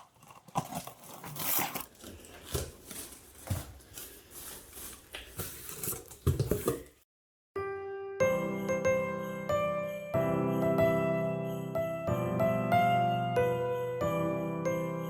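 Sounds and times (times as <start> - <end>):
rustling and crinkling: 0.0 - 7.0
music with bell-like tones: 8.1 - 15.0.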